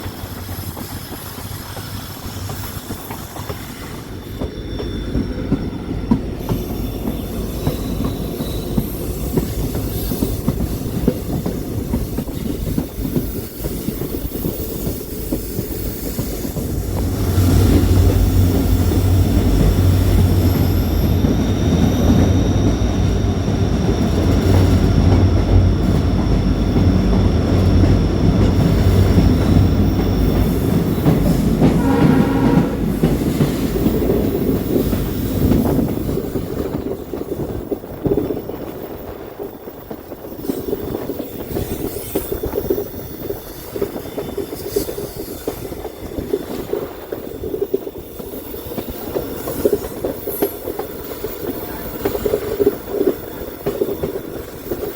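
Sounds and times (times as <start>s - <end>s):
train wheels rumbling on rails: 0.0s - 54.9s
high wheel squeal: 0.1s - 35.5s.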